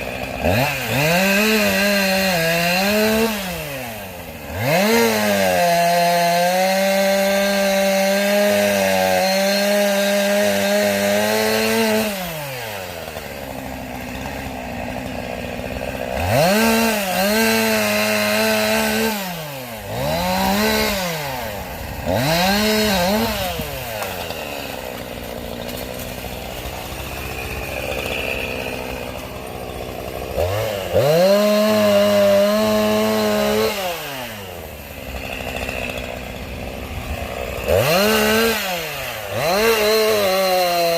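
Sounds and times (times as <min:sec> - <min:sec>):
chainsaw cutting logs: 0:00.0 - 0:40.9.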